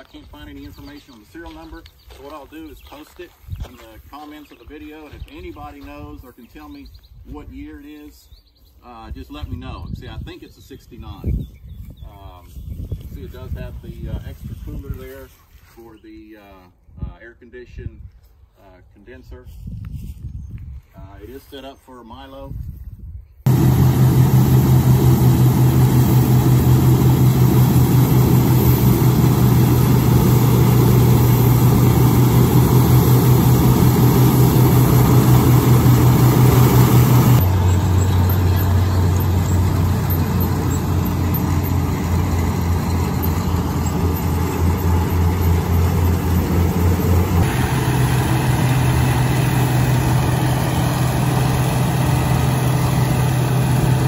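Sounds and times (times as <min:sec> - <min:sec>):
engine humming steadily: 0:23.5 - 0:54.0.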